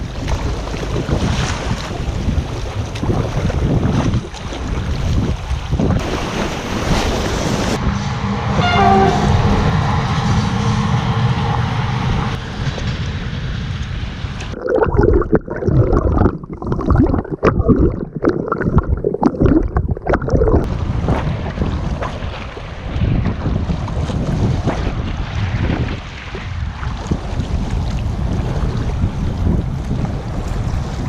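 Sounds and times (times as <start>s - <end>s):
rushing river water: 0.0s - 7.8s
water splashing: 0.0s - 7.8s, 14.5s - 31.0s
wind on microphone: 0.0s - 31.0s
train running with hum: 6.3s - 14.6s
train horn: 7.9s - 11.6s.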